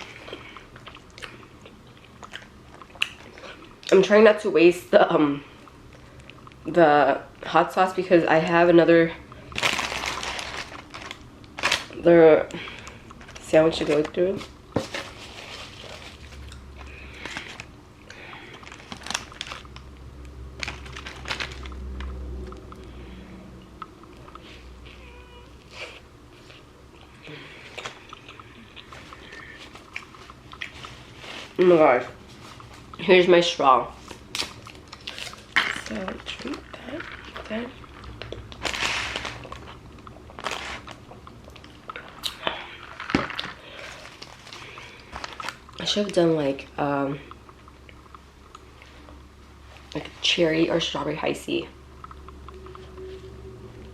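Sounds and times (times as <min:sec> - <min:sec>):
chewing: 0:00.0 - 0:03.9, 0:25.6 - 0:31.6
low steady hum: 0:00.0 - 0:53.9
paper wrapper crinkling: 0:09.4 - 0:12.0, 0:12.6 - 0:17.7, 0:18.5 - 0:19.9, 0:20.6 - 0:22.1, 0:34.0 - 0:46.2.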